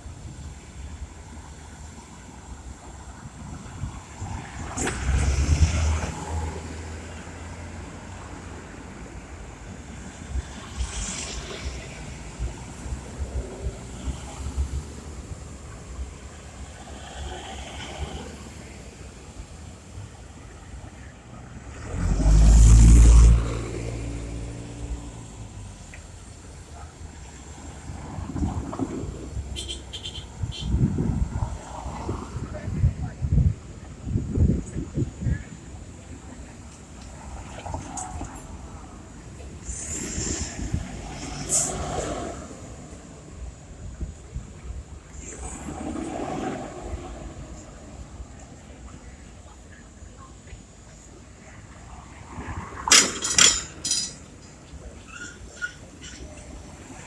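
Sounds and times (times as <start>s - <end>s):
low traffic rumble: 0.0s - 57.0s
vehicles passing with hiss: 0.0s - 57.0s
vehicle engine passing by: 21.5s - 25.9s.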